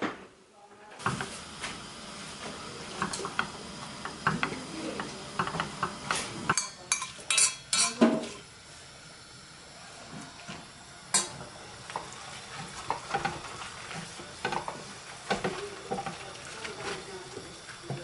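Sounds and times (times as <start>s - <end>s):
food sizzling in a pan: 1.0s - 18.0s
utensil clinking and scraping pan: 4.2s - 8.4s, 11.1s - 17.1s.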